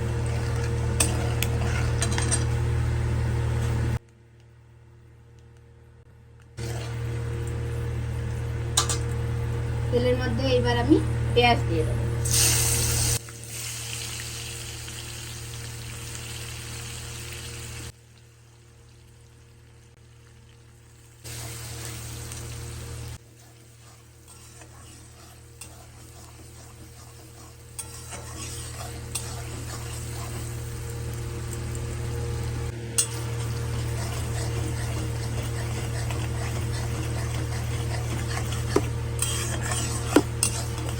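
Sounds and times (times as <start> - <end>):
onions sizzling in oil: 12.2 - 34.3
stirring in pan: 23.1 - 31.8, 33.0 - 40.9.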